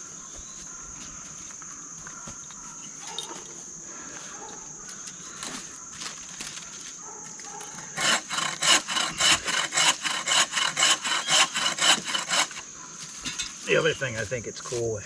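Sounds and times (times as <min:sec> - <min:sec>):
hand saw cutting wood: 0:07.8 - 0:12.7.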